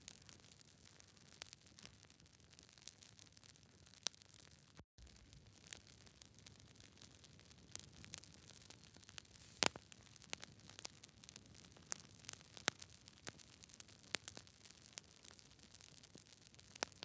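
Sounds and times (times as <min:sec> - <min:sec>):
wood fire popping and snapping: 0:02.8 - 0:17.0
soft hiss: 0:09.3 - 0:09.9.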